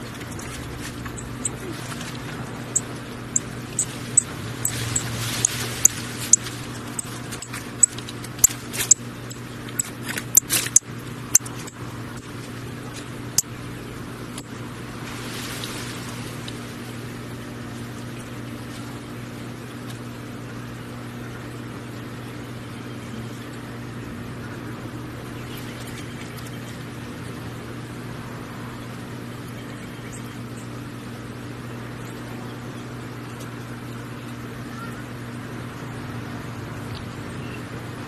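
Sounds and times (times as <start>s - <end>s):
steady low hum: 0.0s - 38.0s
songbird chip notes: 1.0s - 11.8s.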